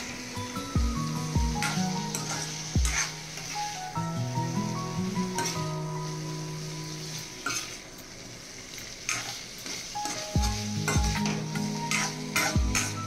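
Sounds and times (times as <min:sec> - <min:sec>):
background music: 0:00.0 - 0:07.4, 0:10.0 - 0:13.0
food sizzling in a pan: 0:00.0 - 0:13.0.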